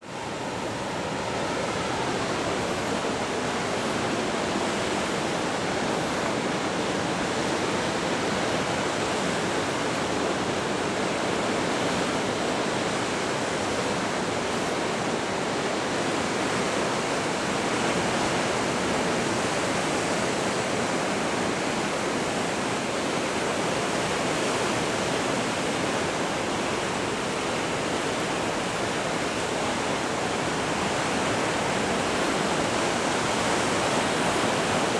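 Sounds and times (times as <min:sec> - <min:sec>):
surf breaking against rocks: 0:00.1 - 0:17.4.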